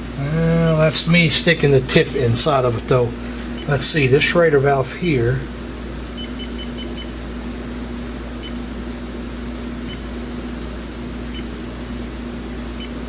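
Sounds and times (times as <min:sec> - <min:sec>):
steady low hum: 0:00.0 - 0:13.0
leak detector high beeps: 0:06.2 - 0:07.2, 0:08.4 - 0:08.6, 0:09.9 - 0:10.1, 0:11.3 - 0:11.5.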